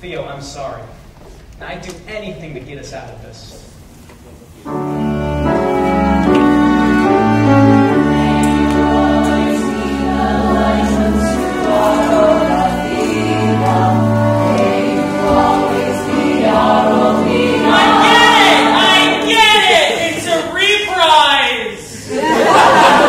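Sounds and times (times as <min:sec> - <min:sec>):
pit orchestra: 0:04.6 - 0:23.0
ensemble singing in chorus: 0:06.1 - 0:20.3, 0:22.0 - 0:23.0.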